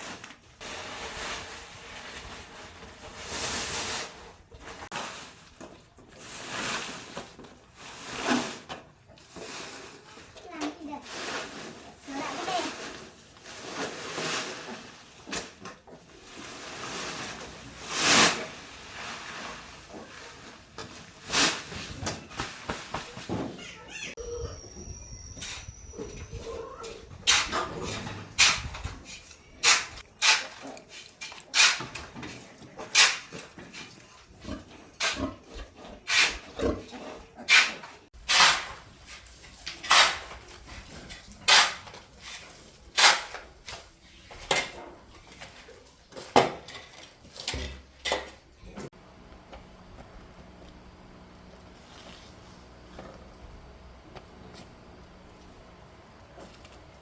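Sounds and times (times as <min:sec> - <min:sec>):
sharp knocks or scrapes: 0:27.2 - 0:34.0, 0:36.1 - 0:45.5.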